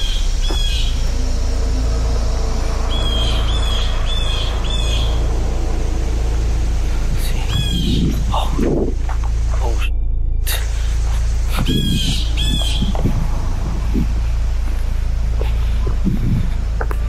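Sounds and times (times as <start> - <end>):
bird chirping: 0.0 - 17.0
steady low rumble: 0.0 - 17.0.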